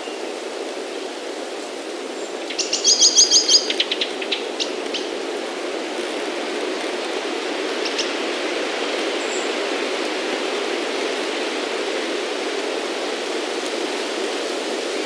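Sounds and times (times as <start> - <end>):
wind noise: 9.7 - 15.0.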